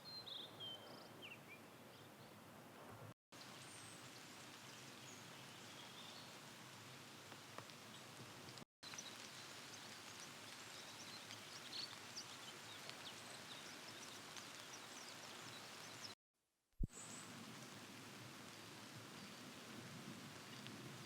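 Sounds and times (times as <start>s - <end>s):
steady low hiss: 16.9s - 21.0s.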